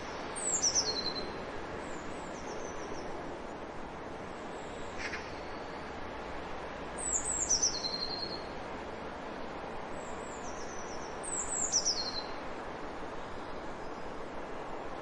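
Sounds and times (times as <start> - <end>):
steady background hiss: 0.0 - 15.0
small bird singing: 0.4 - 3.0, 7.0 - 8.5, 10.0 - 12.4.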